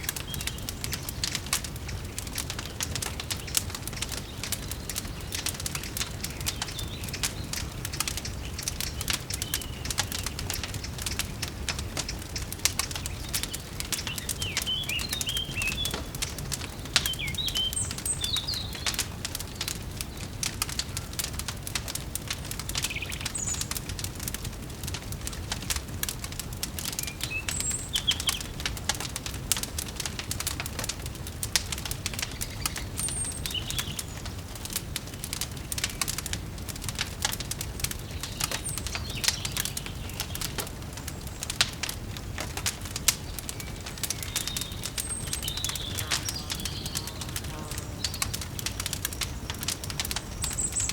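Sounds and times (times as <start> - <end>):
songbird chirps: 0.0 - 24.3, 26.6 - 30.9, 31.6 - 36.6, 37.3 - 50.9
fire crackling and popping: 0.0 - 50.9.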